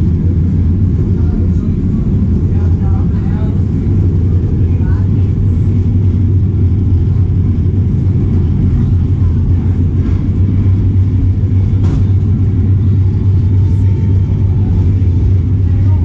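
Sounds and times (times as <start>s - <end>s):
train rumbling on track: 0.0s - 16.0s.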